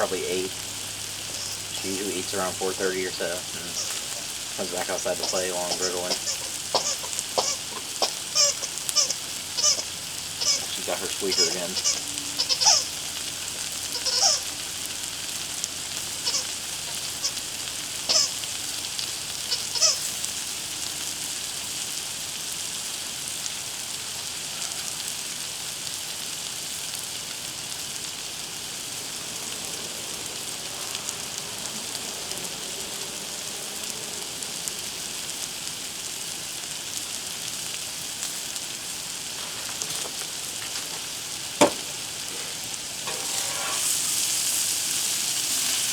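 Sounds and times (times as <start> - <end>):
griddle sizzling: 0.0 - 45.9
squeaky dog toy squeaking: 1.3 - 1.7, 3.2 - 4.4, 5.1 - 13.1, 13.9 - 14.6, 16.2 - 17.4, 18.1 - 18.5, 19.4 - 20.1.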